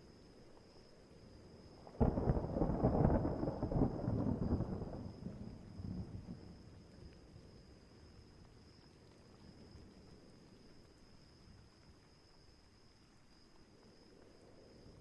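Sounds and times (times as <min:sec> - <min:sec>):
faint steady rain: 0:00.0 - 0:15.0
thunder clap and rumble: 0:02.0 - 0:06.6.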